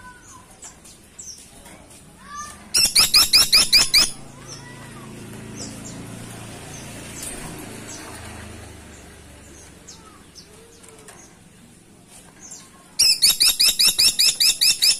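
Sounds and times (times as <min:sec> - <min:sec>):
woodpecker calls: 0:02.8 - 0:04.7, 0:13.0 - 0:14.9.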